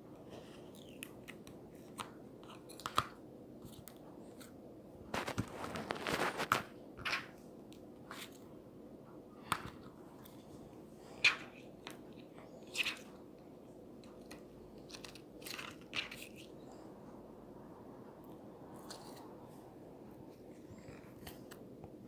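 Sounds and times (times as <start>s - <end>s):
crisp crunching: 5.1s - 6.7s.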